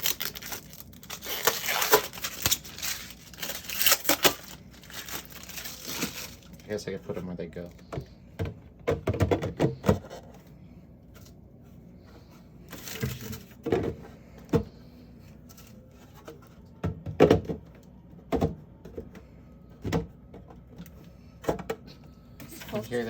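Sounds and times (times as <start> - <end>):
knocks and clatters in refrigerator: 7.8 - 10.3, 12.8 - 14.8, 16.2 - 20.8.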